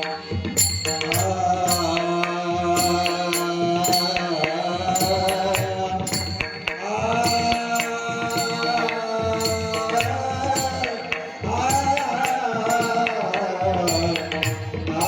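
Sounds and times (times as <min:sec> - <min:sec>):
drum and shaker percussion: 0:00.0 - 0:15.0
person singing long notes: 0:06.8 - 0:15.0.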